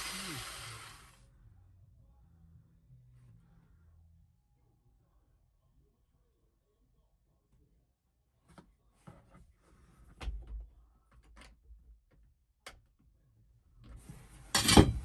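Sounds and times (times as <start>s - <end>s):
tools and parts being handled: 14.4s - 15.0s.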